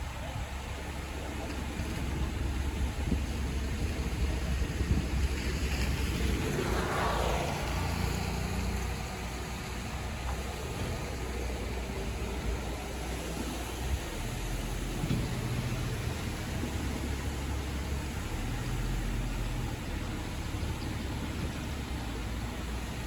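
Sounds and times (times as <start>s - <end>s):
heavy machinery rumbling: 0.0s - 23.0s
rushing swell of noise: 5.0s - 14.3s.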